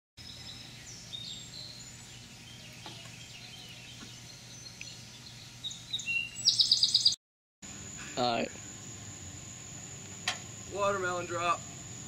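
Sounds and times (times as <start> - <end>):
low steady hum: 0.2 - 6.4, 7.6 - 12.0
bird chirps and whistles: 2.6 - 7.2.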